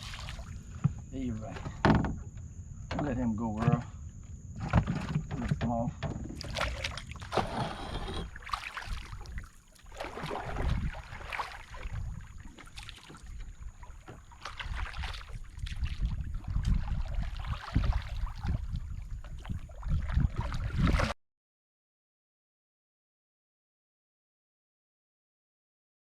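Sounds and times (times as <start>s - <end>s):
water splashes: 0.0s - 0.8s, 6.3s - 21.2s
boat low rumble: 0.0s - 21.1s
knocks on boat: 0.8s - 3.9s.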